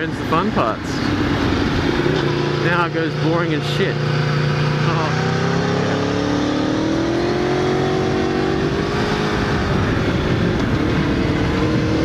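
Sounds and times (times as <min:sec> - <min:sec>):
motorcycle engine running: 0:00.0 - 0:12.0
wind on microphone: 0:07.8 - 0:12.0.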